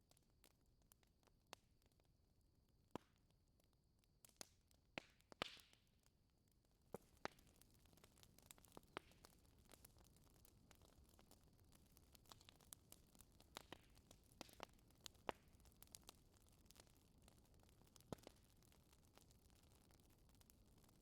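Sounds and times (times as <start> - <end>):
wood fire crackling: 3.0 - 21.0
fire popping: 4.2 - 5.8, 6.5 - 21.0.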